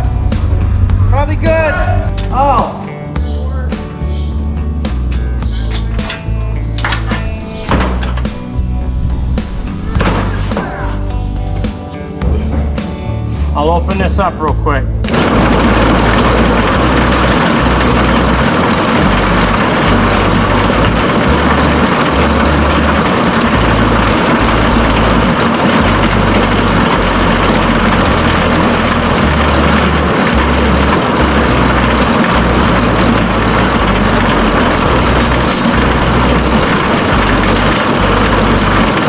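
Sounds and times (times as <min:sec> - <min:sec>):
tractor engine running under load: 0:15.0 - 0:39.0.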